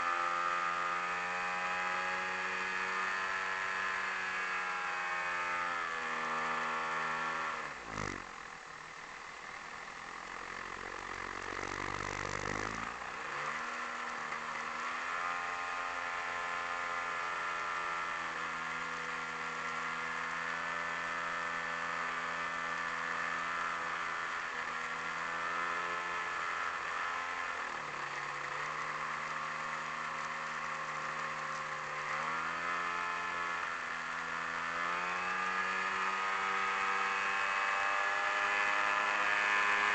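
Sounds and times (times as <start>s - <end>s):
model plane engine: 2.9s - 39.9s.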